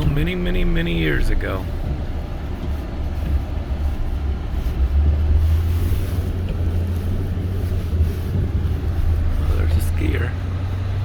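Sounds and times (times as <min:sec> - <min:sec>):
pickup truck driving: 0:00.0 - 0:11.0.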